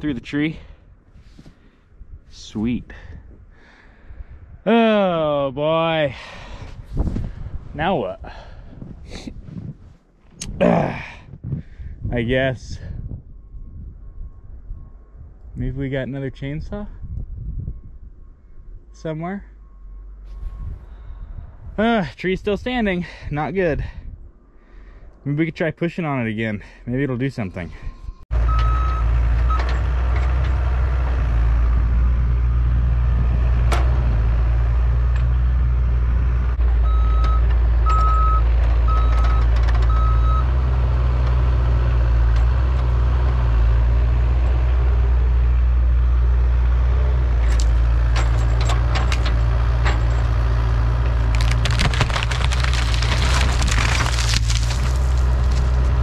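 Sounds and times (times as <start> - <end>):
travel alarm beeping: 36.8 - 40.5
excavator engine running hard: 41.0 - 56.0
wood cracking and snapping: 51.1 - 56.0.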